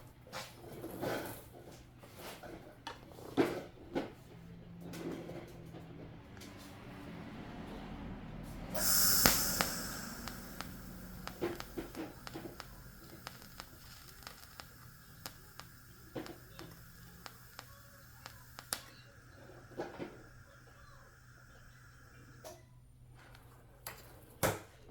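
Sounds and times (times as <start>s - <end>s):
sharp clicks: 8.8s - 19.0s
low hum: 8.8s - 22.4s
welding hiss: 8.8s - 22.4s.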